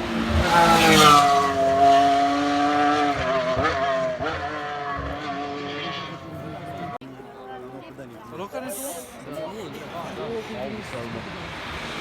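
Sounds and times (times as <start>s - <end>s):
race car engine at high revs: 0.0s - 7.0s.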